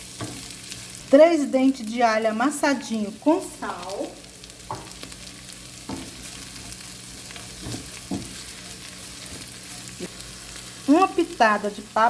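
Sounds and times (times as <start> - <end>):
food sizzling in frying pan: 0.0 - 12.0
stirring scrapes in pan: 5.3 - 10.9.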